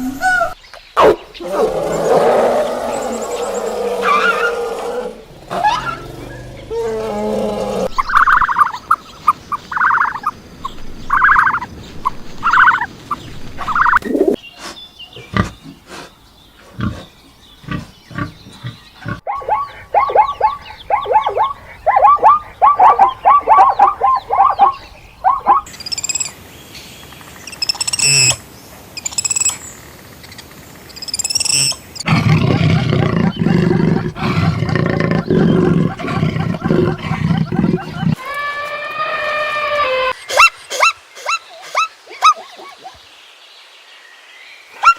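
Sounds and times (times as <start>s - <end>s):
animal calls: 0.0s - 9.0s, 17.6s - 26.3s, 31.1s - 43.0s
long rough low animal call: 1.4s - 8.0s, 32.1s - 40.2s
high sharp cries: 19.3s - 26.2s
rapid chirps: 19.3s - 26.3s.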